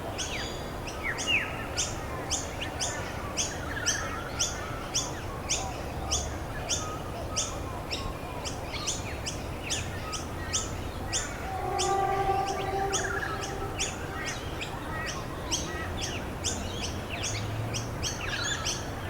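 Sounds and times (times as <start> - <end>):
songbird chirping: 11.0 - 15.0
low held tone: 11.1 - 15.0.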